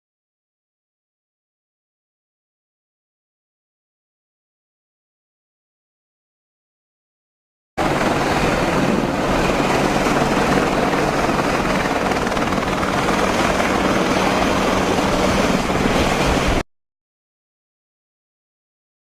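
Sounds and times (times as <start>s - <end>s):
helicopter rotor and engine: 7.8s - 16.6s.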